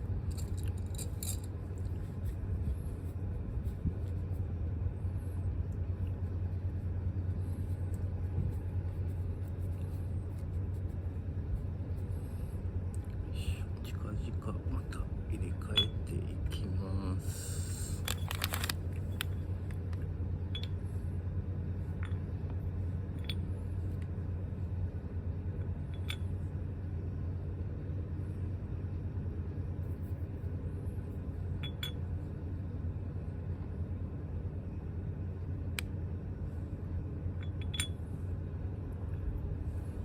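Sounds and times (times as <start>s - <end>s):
steady low background hum: 0.0s - 40.0s
small hard parts clinking: 0.2s - 2.0s, 18.0s - 19.3s.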